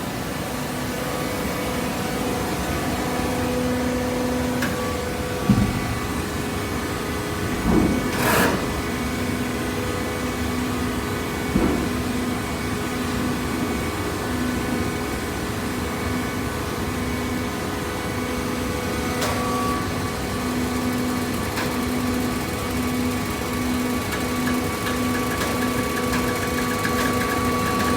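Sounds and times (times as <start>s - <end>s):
hydraulic baler humming: 2.0s - 10.8s, 18.1s - 27.9s.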